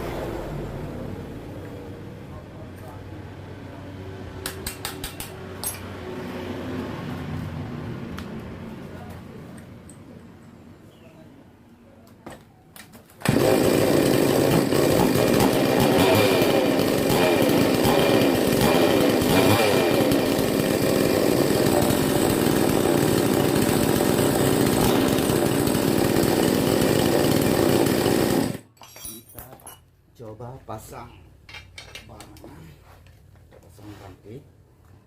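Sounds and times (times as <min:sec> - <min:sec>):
two-stroke chainsaw engine running: 0:13.2 - 0:28.6.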